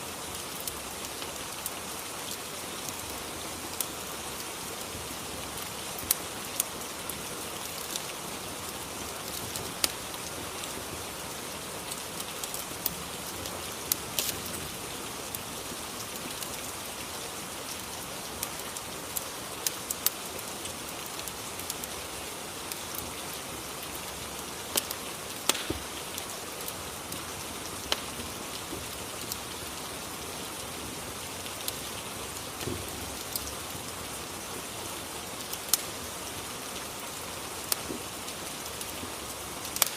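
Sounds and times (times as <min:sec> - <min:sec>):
fire crackling: 0:00.0 - 0:39.9
rain hissing: 0:00.0 - 0:39.9.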